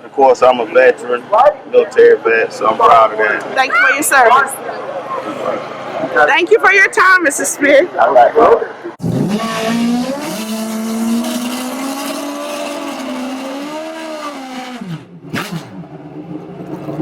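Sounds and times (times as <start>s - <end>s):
motorcycle engine revving high: 9.0s - 17.0s.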